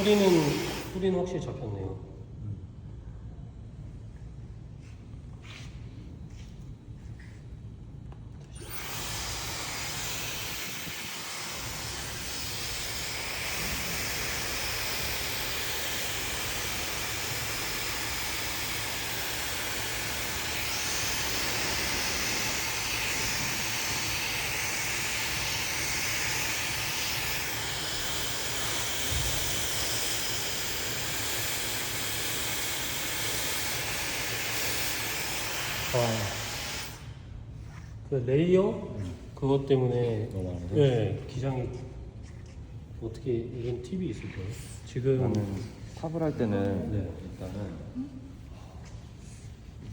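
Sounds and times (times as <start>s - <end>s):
hair dryer blowing: 0.0s - 1.2s, 8.5s - 37.3s.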